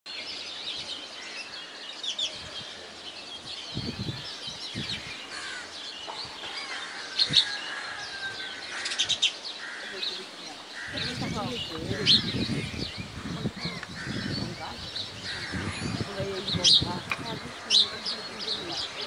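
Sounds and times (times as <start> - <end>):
small birds chirping and twittering: 0.1 - 19.0.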